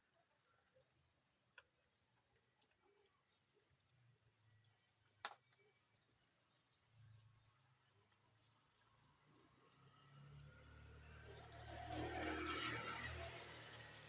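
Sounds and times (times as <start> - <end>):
faint ticks and clicks: 0.0 - 11.0.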